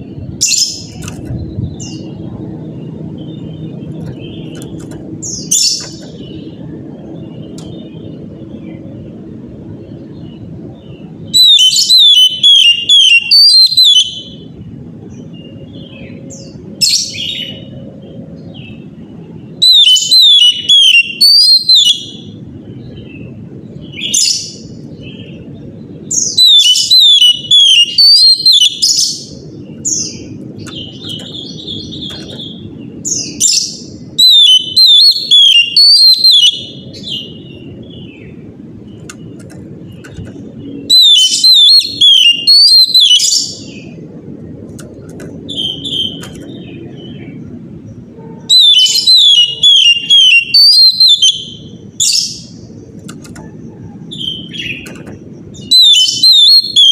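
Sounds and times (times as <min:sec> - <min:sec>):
low steady hum: 0:00.0 - 0:50.6
bird singing whistled notes: 0:10.2 - 0:14.5, 0:19.6 - 0:39.3, 0:40.6 - 0:44.0, 0:45.5 - 0:47.4, 0:48.4 - 0:52.6, 0:53.8 - 0:56.9.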